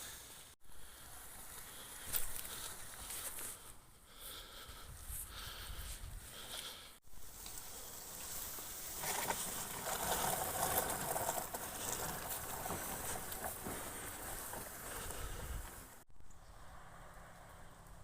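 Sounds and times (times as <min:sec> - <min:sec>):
branches dragged over ground: 0:00.0 - 0:03.7, 0:06.0 - 0:16.0.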